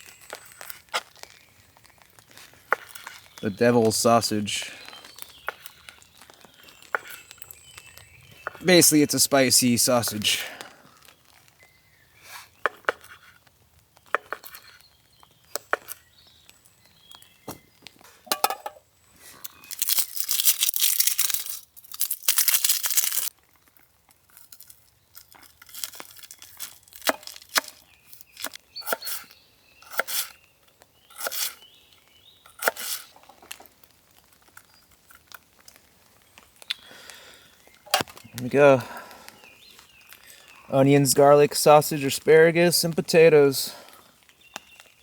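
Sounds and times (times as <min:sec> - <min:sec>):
plastic packaging crinkling: 0:00.0 - 0:04.0, 0:19.2 - 0:28.6
plastic packaging tearing: 0:19.4 - 0:28.6.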